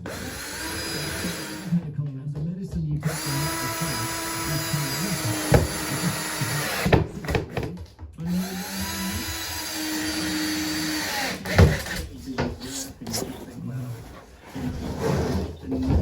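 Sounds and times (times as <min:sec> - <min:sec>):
power tool motor running: 0:00.0 - 0:01.8, 0:03.0 - 0:07.6, 0:08.2 - 0:13.3.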